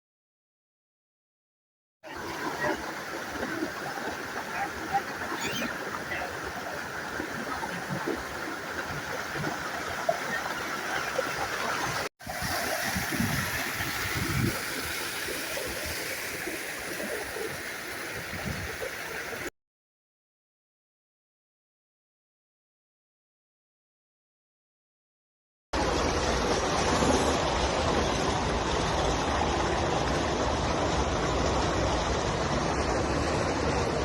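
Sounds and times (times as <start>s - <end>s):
water rushing with splashes: 2.0s - 19.5s, 25.8s - 34.0s.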